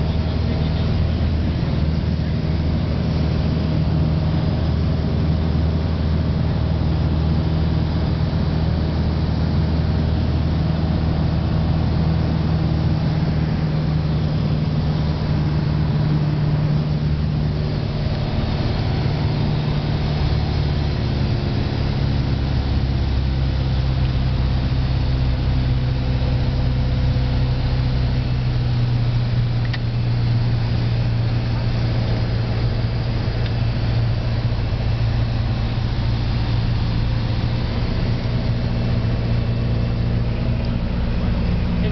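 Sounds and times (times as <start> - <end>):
light aircraft engine droning: 0.0 - 41.9.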